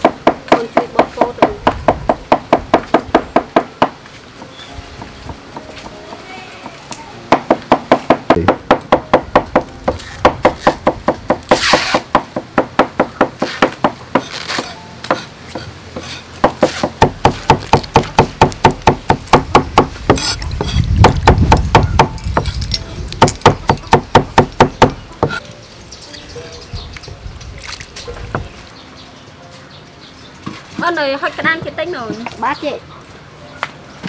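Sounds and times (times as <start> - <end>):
knife chopping on wooden board: 7.3 - 22.5.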